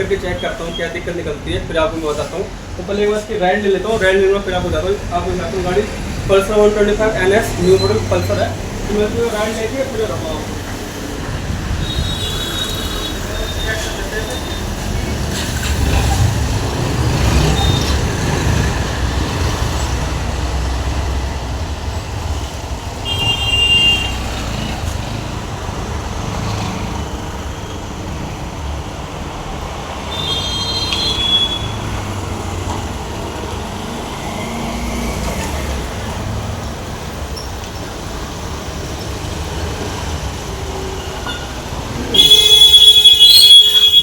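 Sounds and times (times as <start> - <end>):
road traffic: 0.0 - 44.0
short horn toots: 42.2 - 44.0.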